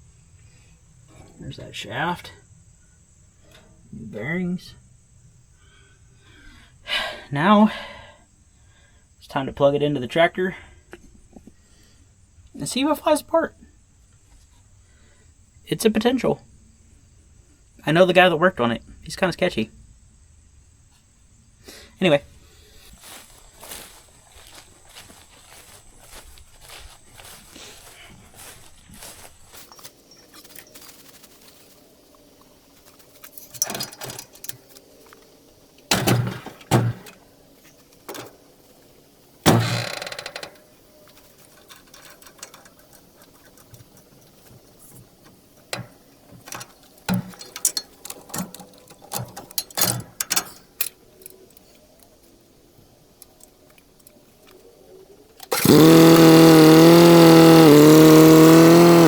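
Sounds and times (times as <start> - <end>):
tractor engine running: 22.3 - 54.5, 55.4 - 59.0
metal clunks and knocks: 35.9 - 37.2, 39.5 - 51.0.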